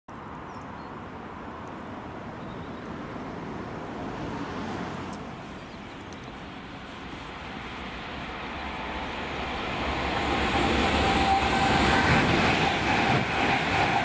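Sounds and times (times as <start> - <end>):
electric train rumble and hiss: 3.0 - 14.0.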